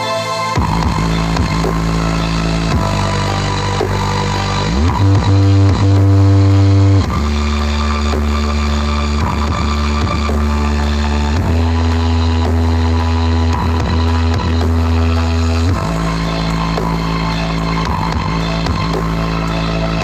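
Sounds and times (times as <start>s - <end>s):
loud music through sound system: 0.0s - 20.0s
strong sliding bass notes: 0.0s - 20.0s.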